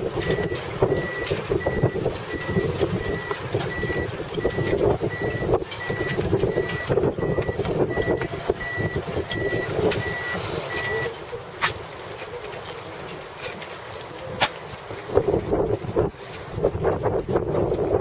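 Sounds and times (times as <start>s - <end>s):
electronic warning beeper: 0.2s - 11.1s.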